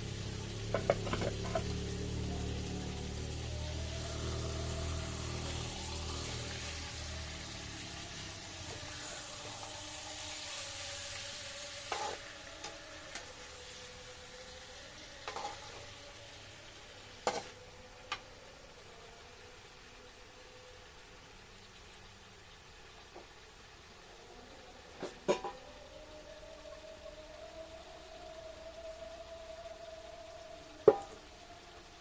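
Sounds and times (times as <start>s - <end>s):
food sizzling in oil: 0.0s - 31.7s.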